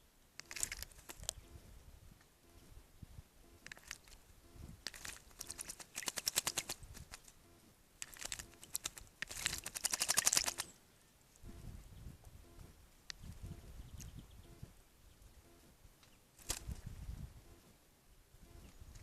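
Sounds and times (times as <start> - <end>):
bird splashing water: 0.4 - 1.4, 3.6 - 4.2, 4.8 - 7.4, 8.0 - 10.8, 16.4 - 16.8.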